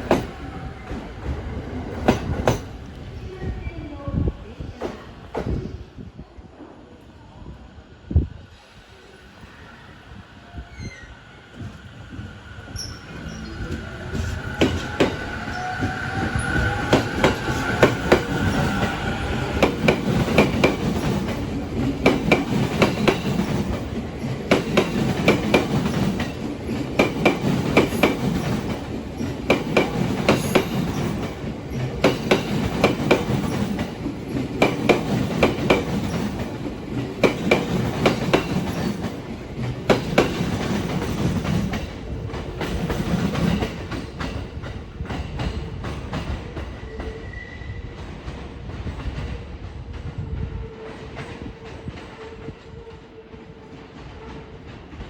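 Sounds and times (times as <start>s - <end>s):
train wheels clacking on rail joints: 0.0s - 3.0s, 11.5s - 47.4s
train rumble: 0.0s - 55.0s.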